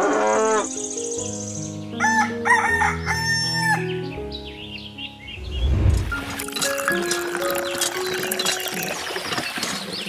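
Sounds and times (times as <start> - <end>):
background music: 0.0 - 9.5
rooster crowing: 2.0 - 3.8.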